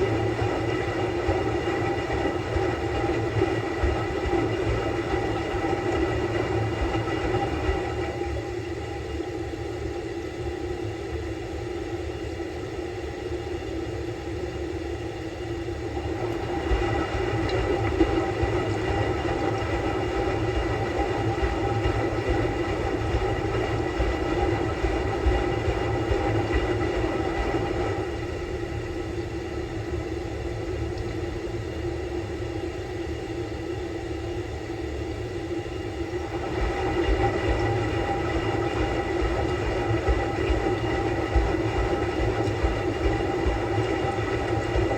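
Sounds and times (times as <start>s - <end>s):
motor hum: 15.9s - 32.4s, 35.6s - 44.9s
washing machine drum rumble: 36.2s - 44.9s.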